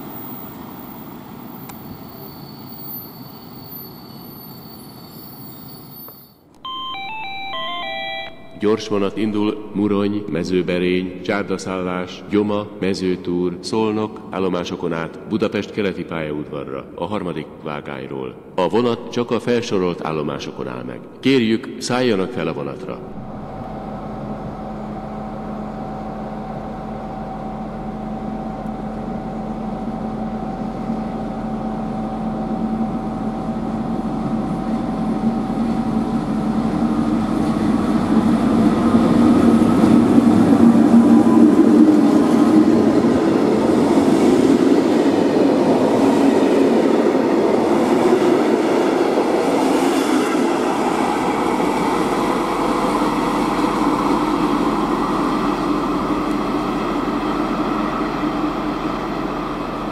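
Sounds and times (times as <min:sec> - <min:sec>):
train rumble and wheel clatter: 0:00.0 - 0:06.6, 0:22.8 - 0:59.9
electric locomotive hum: 0:00.0 - 0:14.3, 0:22.9 - 0:59.9.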